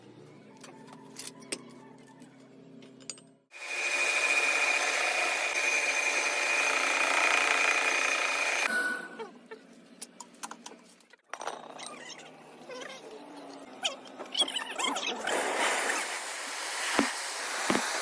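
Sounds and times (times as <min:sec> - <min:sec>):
power tool whining: 0:03.6 - 0:08.7.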